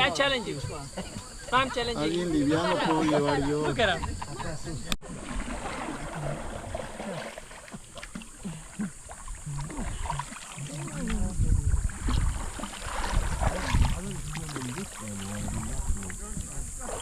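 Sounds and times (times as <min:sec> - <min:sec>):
water sloshing: 0:00.0 - 0:17.0
faint voices: 0:08.5 - 0:12.4, 0:13.0 - 0:17.0.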